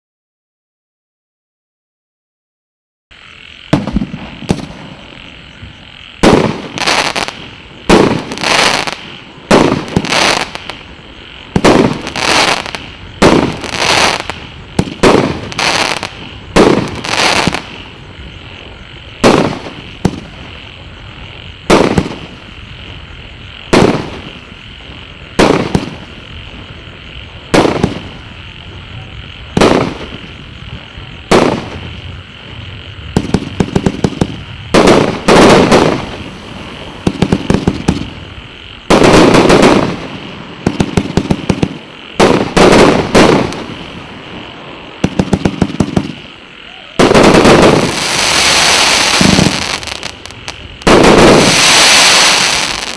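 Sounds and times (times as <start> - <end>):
fireworks bangs: 3.6 - 52.9
fireworks short pops: 3.7 - 4.9.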